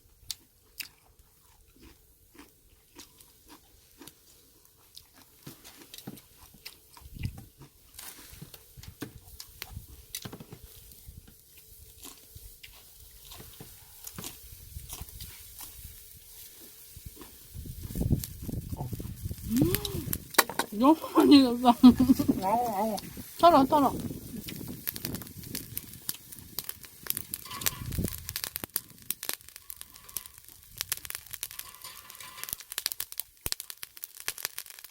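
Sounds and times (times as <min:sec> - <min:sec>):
person chewing crunchy food: 0:00.0 - 0:20.4, 0:23.0 - 0:34.9
wet mouth clicks: 0:19.4 - 0:20.2.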